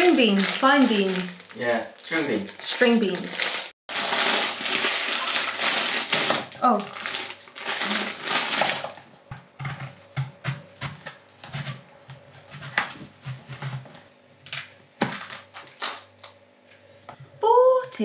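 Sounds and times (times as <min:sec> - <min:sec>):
plastic packaging crinkling: 0:00.0 - 0:09.0, 0:14.4 - 0:16.4.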